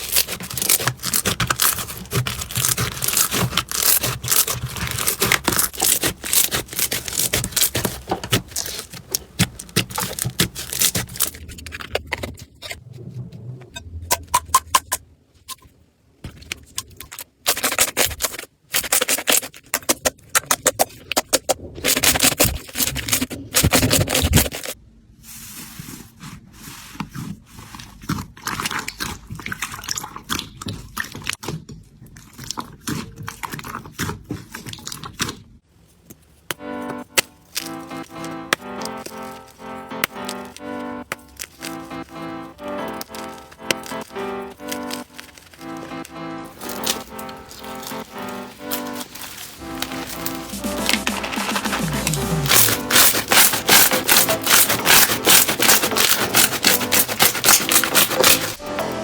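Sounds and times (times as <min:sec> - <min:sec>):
slime crackling and popping: 0:00.0 - 0:12.8, 0:16.6 - 0:24.8, 0:36.9 - 0:58.6
slime squishing and scraping: 0:00.0 - 0:58.7.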